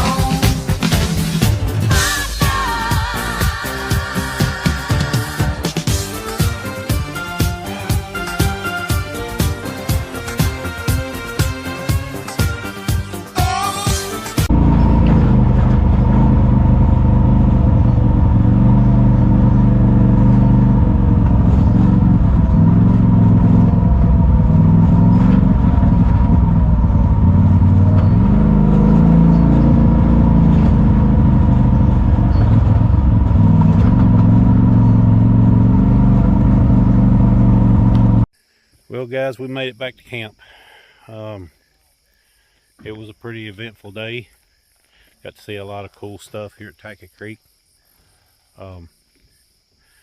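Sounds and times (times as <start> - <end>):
utility vehicle engine under load: 14.4 - 38.3.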